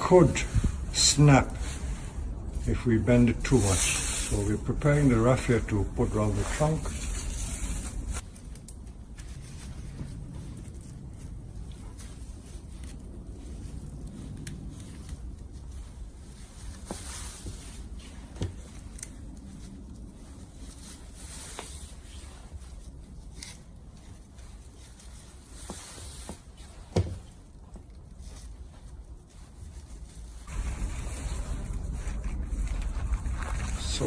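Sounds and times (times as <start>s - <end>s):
raffia rubbing against wood: 0.0s - 8.2s, 11.7s - 34.0s.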